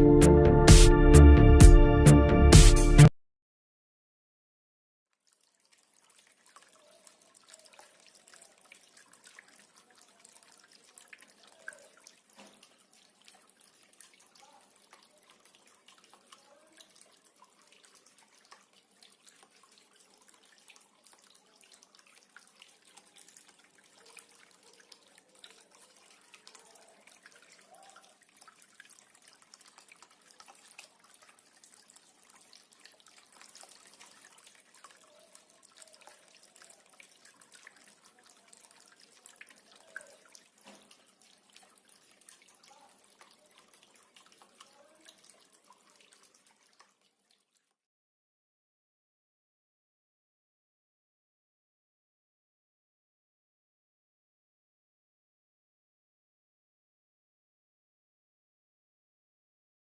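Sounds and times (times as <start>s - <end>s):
fountain water trickling: 5.2s - 47.8s.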